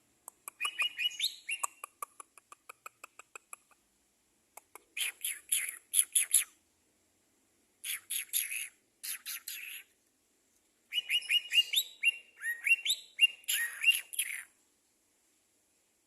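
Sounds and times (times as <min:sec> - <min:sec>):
songbird chirping and whistling: 0:00.5 - 0:02.0, 0:05.0 - 0:06.6, 0:07.8 - 0:09.9, 0:10.9 - 0:14.6.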